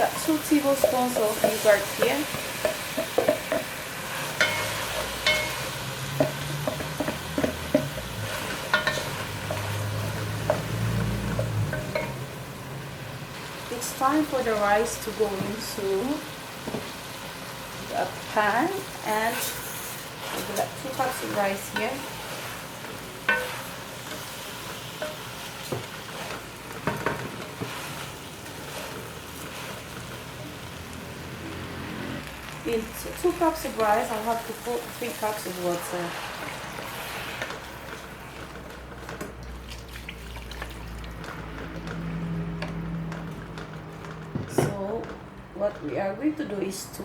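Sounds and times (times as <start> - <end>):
chicken sizzling in oil: 0.0 - 42.6
spoon knocking against pan: 2.6 - 3.8, 4.4 - 8.1, 11.3 - 12.2
metal clinks against pot: 4.4 - 5.6, 8.7 - 9.6.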